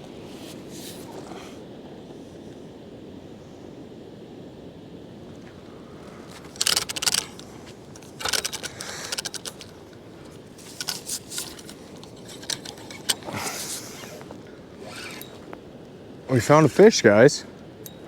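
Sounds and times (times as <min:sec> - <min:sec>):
clinking and rattling: 0:06.5 - 0:14.1.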